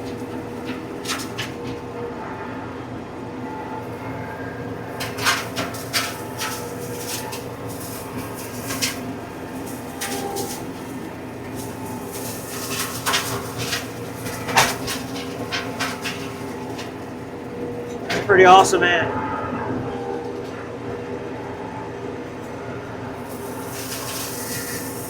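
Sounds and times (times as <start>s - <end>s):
flail mower shredding brush: 0.0s - 2.0s, 4.7s - 19.0s, 23.2s - 25.0s
diesel tractor running: 0.0s - 25.0s.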